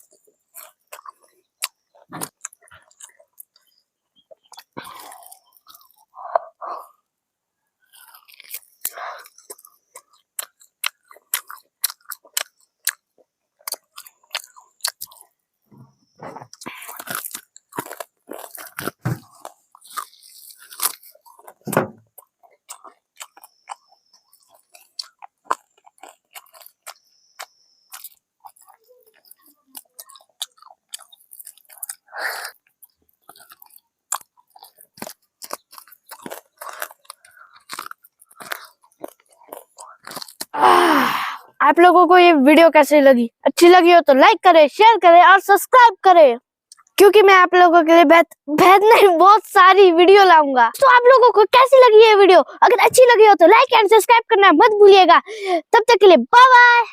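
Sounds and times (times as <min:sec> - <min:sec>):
person chewing crunchy food: 0:00.0 - 0:07.1, 0:07.8 - 0:15.4, 0:16.0 - 0:41.4
wet mouth clicks: 0:22.2 - 0:40.6, 0:46.7 - 0:47.0.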